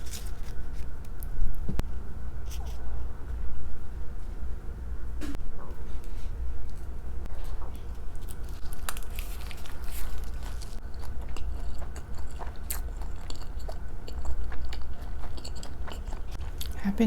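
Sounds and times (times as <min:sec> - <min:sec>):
steady low hum: 0:00.0 - 0:17.0
mouth chewing soft food: 0:06.7 - 0:16.8.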